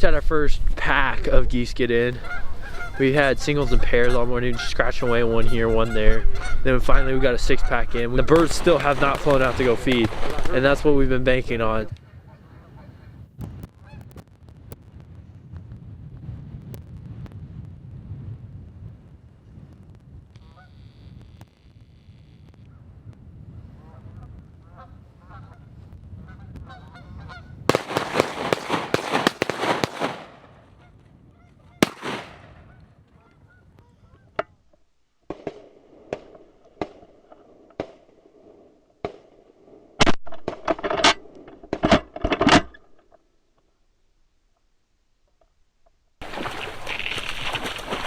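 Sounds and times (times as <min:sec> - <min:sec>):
geese honking: 0:02.1 - 0:11.8, 0:30.7 - 0:34.4.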